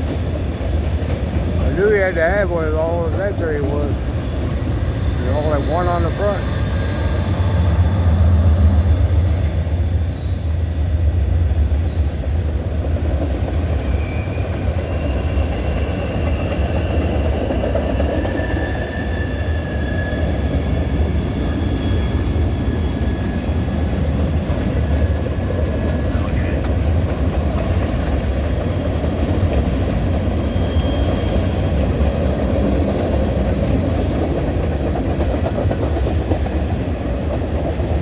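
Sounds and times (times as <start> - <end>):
steel wheels rumbling on rail: 0.0 - 38.0
high-pitched wheel squeals: 9.9 - 20.5, 30.4 - 32.6.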